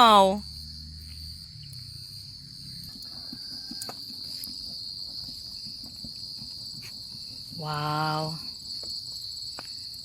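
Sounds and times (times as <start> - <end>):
insect chorus chirring: 0.0 - 10.0
faint ticks: 3.7 - 4.6.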